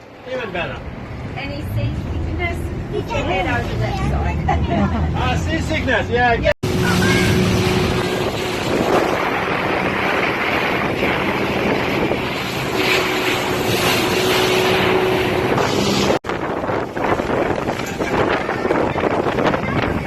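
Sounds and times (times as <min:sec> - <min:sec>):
boat engine humming: 0:00.0 - 0:20.0
wind on microphone: 0:06.6 - 0:20.0.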